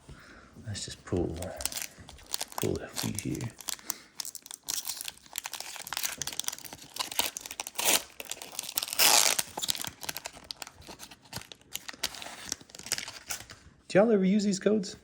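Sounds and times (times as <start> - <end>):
foil wrapper crinkling: 1.1 - 13.6
foil wrapper ripping: 1.2 - 13.5.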